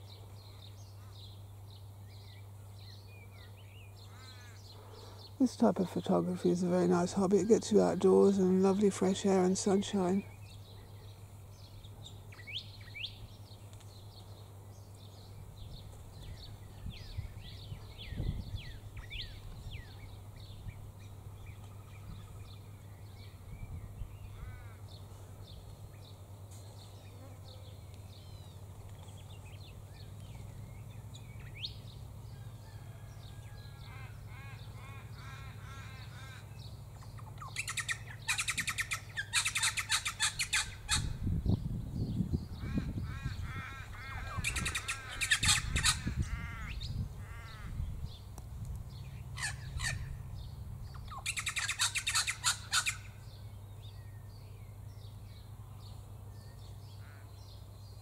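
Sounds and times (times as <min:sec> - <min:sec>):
low steady hum: 0:00.0 - 0:58.0
birds chirping and whistling: 0:15.7 - 0:20.8, 0:28.1 - 0:32.0, 0:36.0 - 0:43.4, 0:44.0 - 0:48.3, 0:48.9 - 0:54.3
harsh bird squawking: 0:37.2 - 0:41.2, 0:42.6 - 0:47.8, 0:49.4 - 0:50.2, 0:51.0 - 0:53.1.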